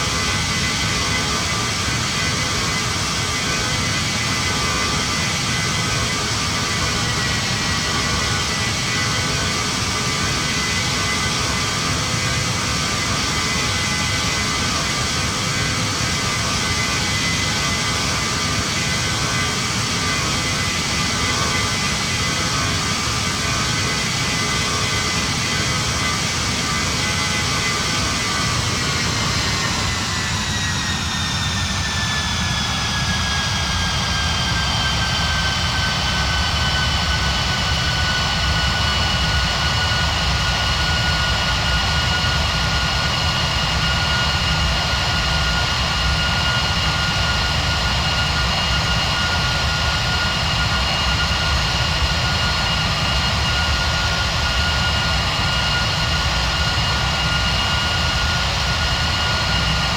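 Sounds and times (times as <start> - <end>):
high engine whine: 14.1 - 59.9.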